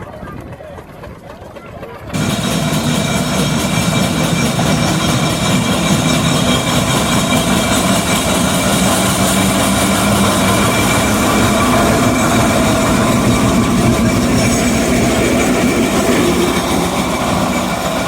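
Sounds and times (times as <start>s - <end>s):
steam traction engine running: 2.1s - 18.0s.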